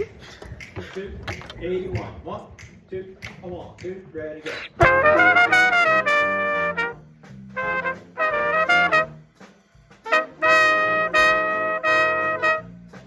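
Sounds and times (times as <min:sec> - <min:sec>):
jazz big band playing swing: 0:04.5 - 0:13.0
bass line: 0:04.7 - 0:09.4, 0:10.1 - 0:13.0
trumpets punching chords: 0:04.8 - 0:09.4, 0:10.0 - 0:13.0.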